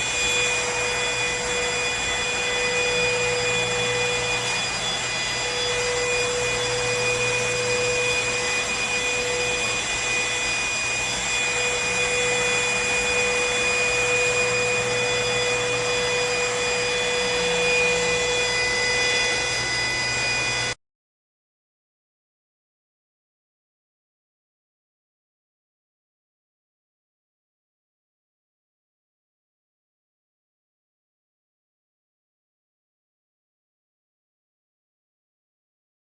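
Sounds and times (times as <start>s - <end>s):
stick vacuum running: 0.0s - 20.8s.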